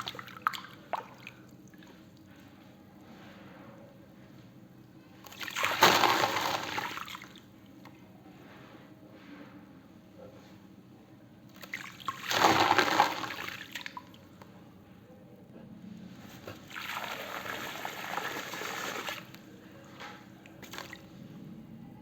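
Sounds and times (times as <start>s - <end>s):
water and wet cement pouring: 5.2s - 7.4s, 11.6s - 14.1s, 16.3s - 19.5s, 20.6s - 21.1s.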